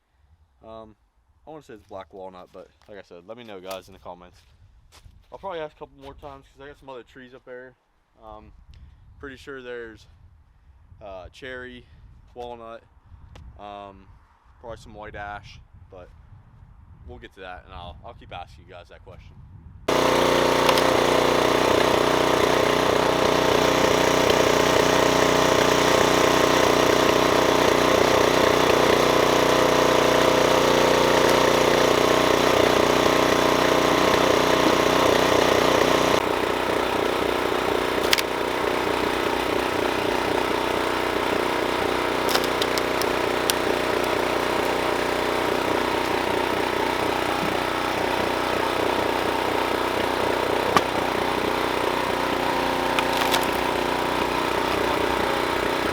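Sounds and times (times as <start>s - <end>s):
wood cracking: 19.9s - 23.0s, 28.6s - 33.1s, 37.9s - 38.4s, 42.1s - 47.6s, 50.7s - 55.1s
small gas engine running: 19.9s - 55.9s.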